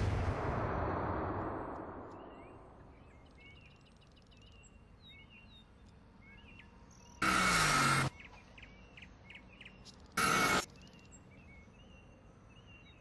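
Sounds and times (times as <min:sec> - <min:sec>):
sudden loud noise with falling tone: 0:00.0 - 0:03.1
faint outdoor background noise: 0:00.0 - 0:13.0
birds chirping: 0:02.0 - 0:13.0.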